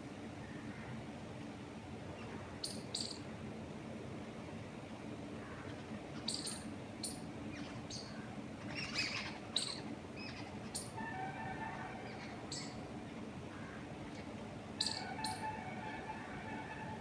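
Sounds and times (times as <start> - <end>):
birds chirping: 2.2 - 3.2, 5.5 - 16.9.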